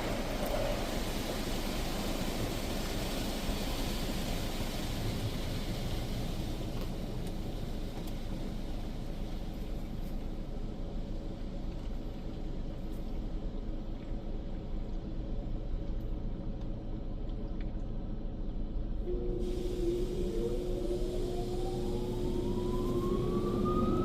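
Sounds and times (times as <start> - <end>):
water spraying onto car: 0.0 - 10.0
steady low rumble: 0.0 - 24.0.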